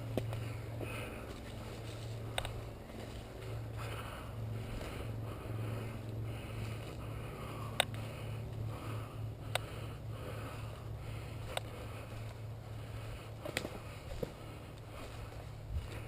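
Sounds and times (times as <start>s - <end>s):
low hum: 0.0s - 16.0s
person breathing hard: 0.0s - 16.0s.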